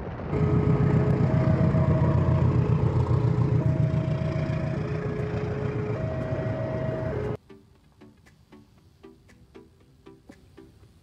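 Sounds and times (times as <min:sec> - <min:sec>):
train rumbling past: 0:00.0 - 0:07.4
two-tone crossing alarm: 0:00.3 - 0:07.4.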